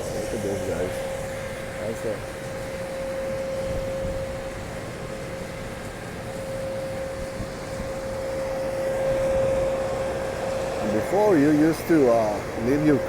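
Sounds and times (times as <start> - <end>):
car wash machinery droning: 0.0 - 13.0.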